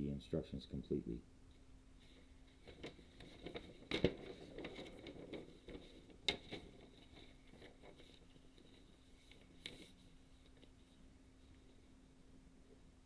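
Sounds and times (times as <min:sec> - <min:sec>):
paper booklet rustling: 0:02.0 - 0:11.9.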